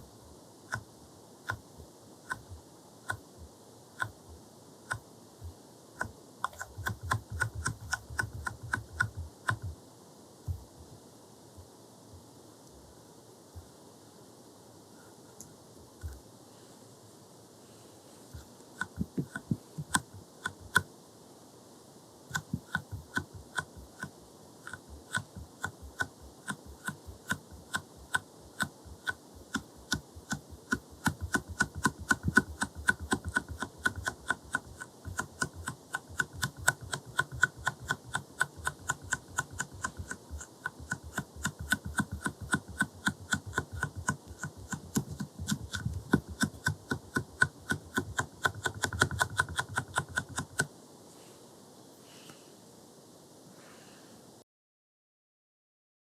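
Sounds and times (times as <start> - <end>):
jelly stamper tapping: 24.7 - 50.7.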